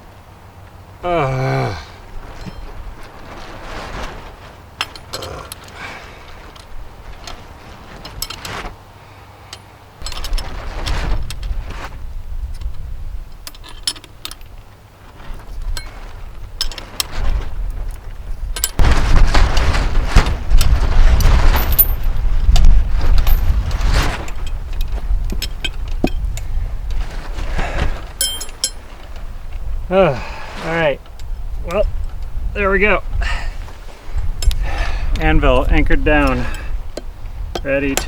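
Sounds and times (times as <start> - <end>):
metal tools clinking and knocking: 28.2 - 28.9.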